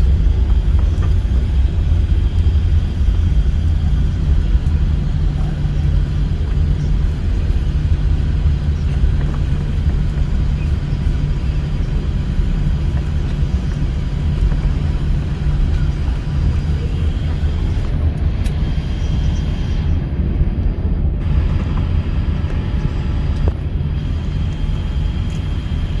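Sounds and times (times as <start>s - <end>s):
airliner cabin engine rumble: 0.0s - 26.0s.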